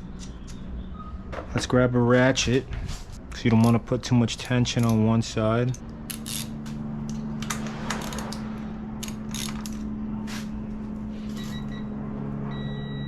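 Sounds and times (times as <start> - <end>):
steady low hum: 0.0 - 13.0
socket ratchet clicking: 5.7 - 8.4, 9.0 - 9.9.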